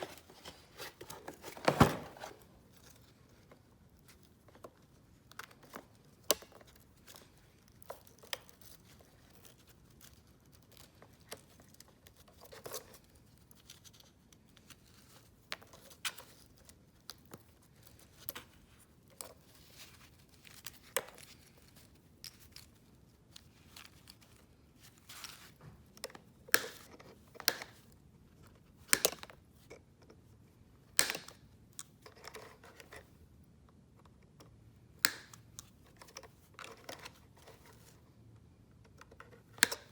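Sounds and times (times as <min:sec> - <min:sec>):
plastic clicks and snaps: 0:28.9 - 0:29.4, 0:30.9 - 0:32.4, 0:34.4 - 0:36.3.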